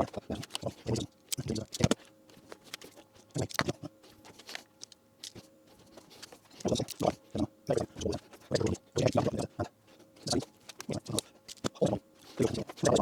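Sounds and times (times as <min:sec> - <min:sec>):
small clicks and snaps of handwork: 0:00.0 - 0:07.2, 0:10.2 - 0:13.0
faint steady hum: 0:00.0 - 0:13.0.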